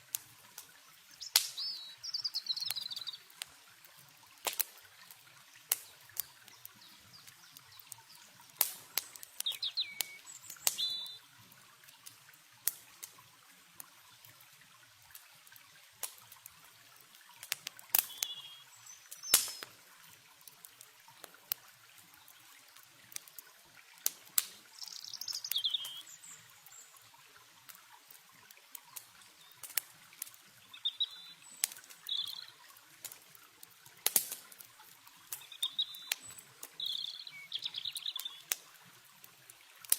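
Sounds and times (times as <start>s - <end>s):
campfire crackling and popping: 0.0s - 39.9s
flowing water hiss: 0.0s - 39.9s
birds chirping: 1.1s - 3.3s, 6.5s - 11.3s, 18.0s - 19.7s, 24.7s - 26.9s, 30.6s - 32.6s, 35.3s - 38.5s.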